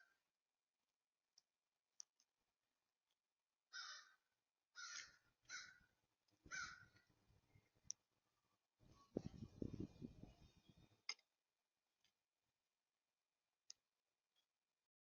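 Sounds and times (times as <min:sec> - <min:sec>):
faint harsh bird calls: 0:03.7 - 0:07.8.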